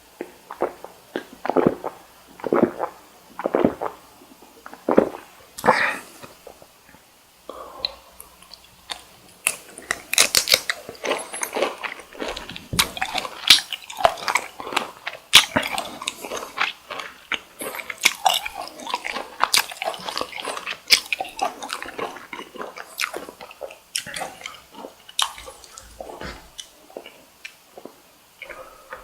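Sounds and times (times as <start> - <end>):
chewing shrimp with mouth smacks: 7.8 - 29.0.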